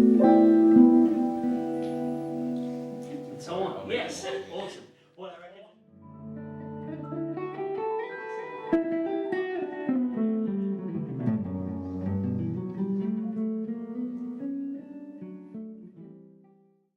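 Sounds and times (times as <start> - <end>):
band with plucked guitar: 0.0 - 4.7, 6.0 - 16.2.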